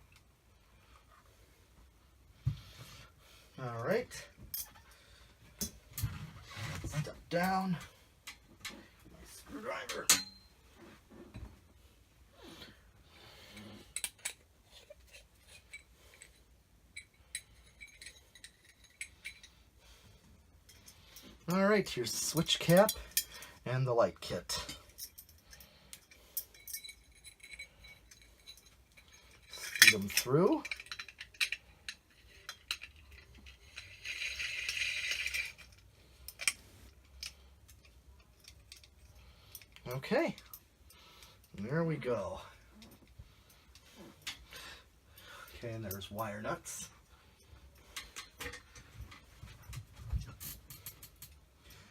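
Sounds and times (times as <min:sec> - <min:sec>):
metal parts clinking: 0:13.6 - 0:19.6, 0:22.1 - 0:23.6, 0:24.5 - 0:40.7.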